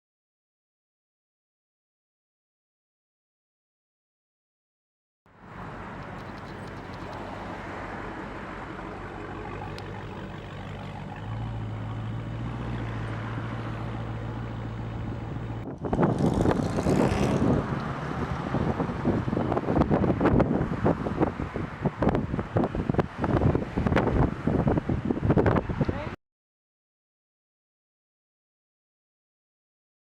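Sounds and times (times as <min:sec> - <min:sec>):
vehicle running hum: 0:05.3 - 0:25.9
low steady tone: 0:05.4 - 0:15.7
wind buffeting microphone: 0:05.7 - 0:26.2.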